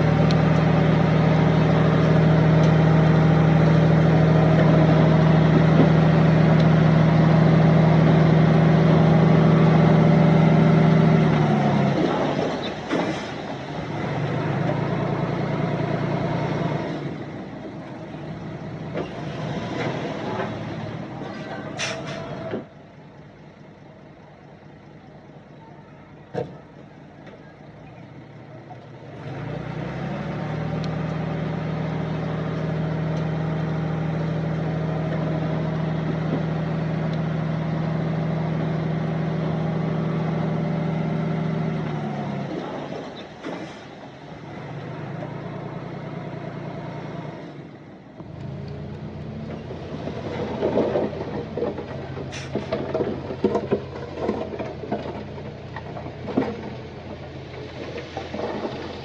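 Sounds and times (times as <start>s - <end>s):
heavy diesel machinery running: 0.0s - 59.0s
stones knocking and clattering: 50.0s - 59.0s.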